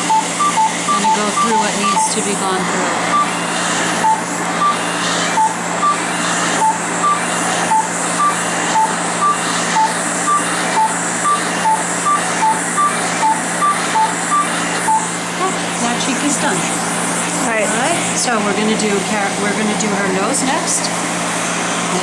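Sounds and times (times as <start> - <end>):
laser device beeping: 0.0 - 16.6.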